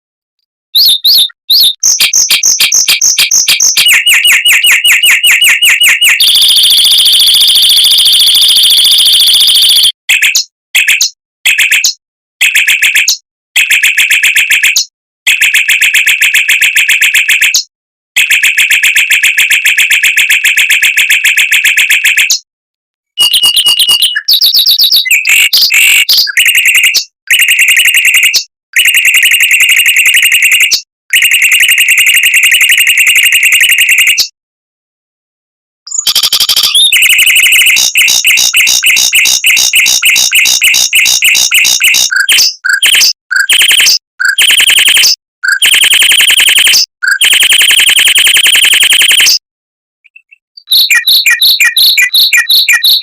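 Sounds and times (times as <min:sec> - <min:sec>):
mockingbird singing fast trills: 0:00.8 - 0:06.5, 0:23.2 - 0:27.1, 0:35.9 - 0:45.1, 0:50.1 - 0:53.0.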